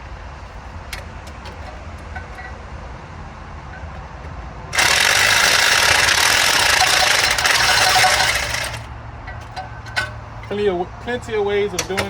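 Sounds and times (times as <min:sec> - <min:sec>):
impact wrench hammering: 0:04.8 - 0:10.2.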